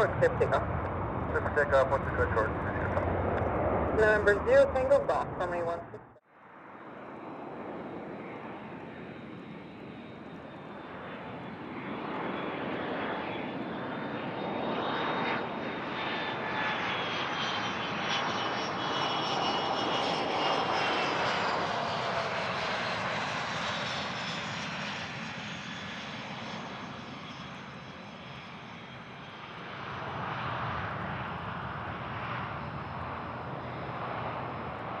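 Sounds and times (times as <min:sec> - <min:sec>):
high engine whine: 0:00.0 - 0:11.7
aircraft engines roaring: 0:00.0 - 0:35.0.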